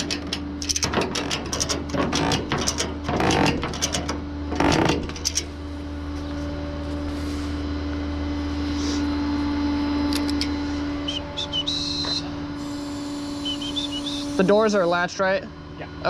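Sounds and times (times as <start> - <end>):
metal clatter and clicks: 0.0 - 5.6
mechanical hum: 0.0 - 16.0.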